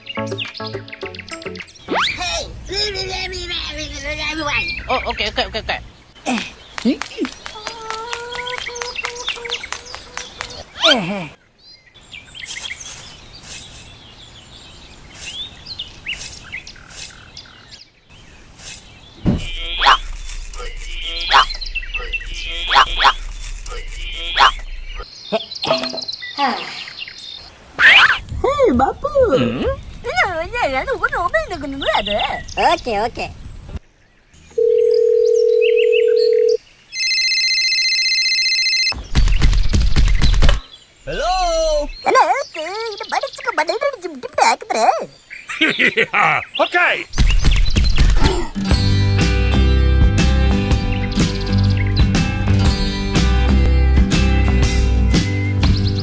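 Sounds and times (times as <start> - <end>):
small birds chirping: 0.0 - 37.0, 39.0 - 56.0
outdoor background noise: 0.0 - 56.0
bursts of high hiss: 18.4 - 25.1
buzzy telephone ring: 34.6 - 39.0
telephone ringing tone: 34.6 - 39.0.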